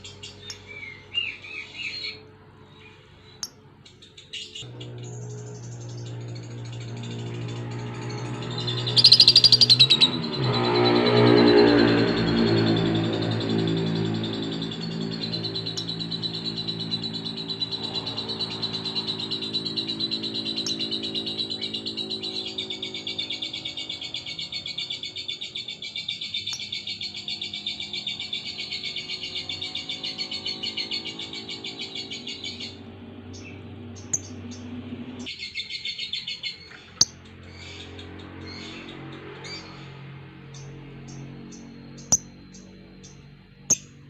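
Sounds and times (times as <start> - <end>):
bird chirps: 0.0 - 44.0
lovebird chattering trill: 5.6 - 34.8, 40.6 - 44.0.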